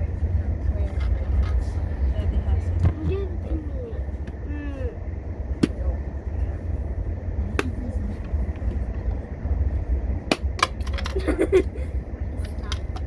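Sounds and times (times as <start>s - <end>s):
train rumbling inside carriage: 0.0s - 13.0s.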